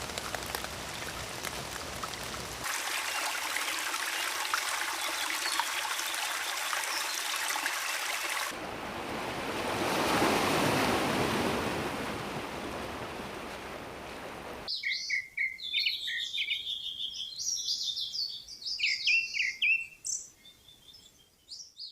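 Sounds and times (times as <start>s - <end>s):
running water hissing: 0.0s - 8.6s
small birds chirping: 4.0s - 7.7s, 14.7s - 21.9s
rush like surf: 8.1s - 14.7s.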